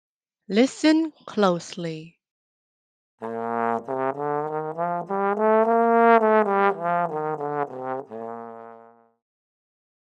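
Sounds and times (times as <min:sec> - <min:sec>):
trombone solo: 0:03.2 - 0:09.1.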